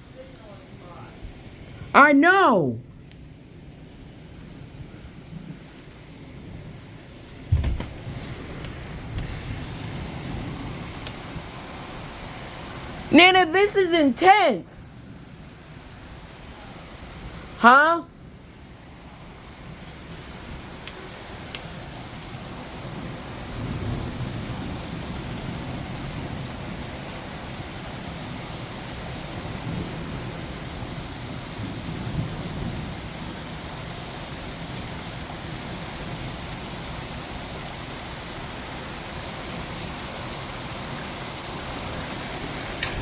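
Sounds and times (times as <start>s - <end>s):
heavy rain pouring: 0.0s - 13.6s, 14.8s - 43.0s
low rolling thunder: 7.4s - 12.2s.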